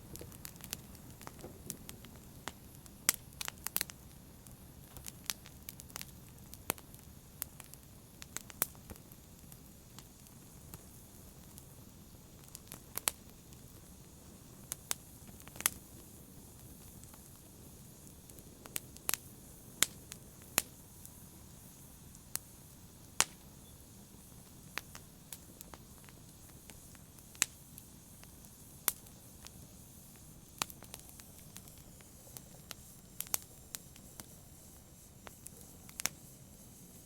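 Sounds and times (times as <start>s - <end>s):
soft hiss of burning: 0.0s - 37.0s
wood fire crackling: 0.0s - 37.0s.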